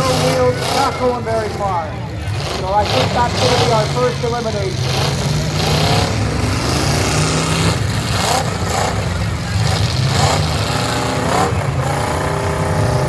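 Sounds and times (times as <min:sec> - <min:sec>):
pickup truck engines revving: 0:00.0 - 0:13.0.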